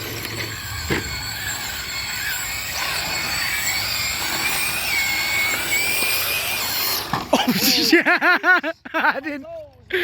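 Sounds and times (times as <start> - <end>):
high electric motor whine: 0.0 - 7.7
tyres on dirt: 0.0 - 10.0.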